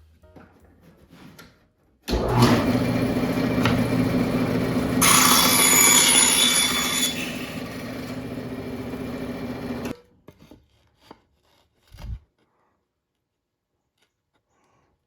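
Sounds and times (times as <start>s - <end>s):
bandsaw cutting wood: 2.1s - 9.9s
bandsaw humming: 2.1s - 9.9s.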